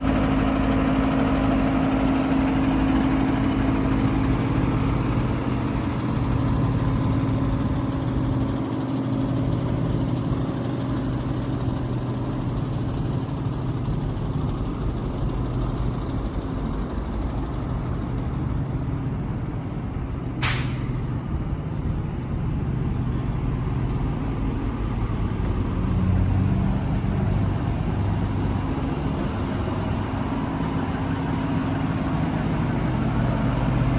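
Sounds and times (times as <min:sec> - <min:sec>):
diesel engine idling: 0:00.0 - 0:33.9
sharp click: 0:20.4 - 0:21.0.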